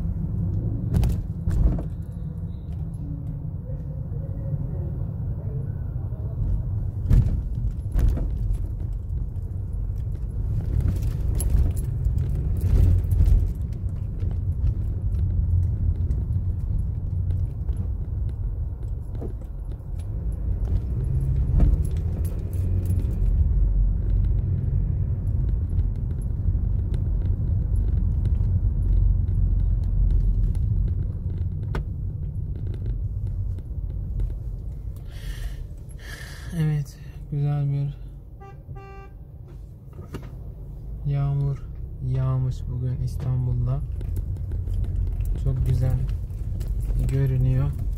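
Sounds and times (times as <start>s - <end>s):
road and engine rumble: 0.0s - 47.9s
sharp ticks and light rattles: 43.6s - 47.9s.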